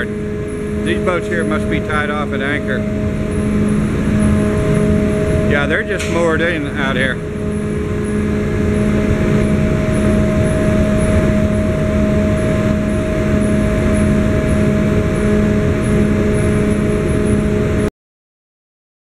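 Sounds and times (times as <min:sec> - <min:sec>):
ferry engines rumbling: 0:00.0 - 0:16.4
multi-tone engine hum: 0:00.0 - 0:17.9.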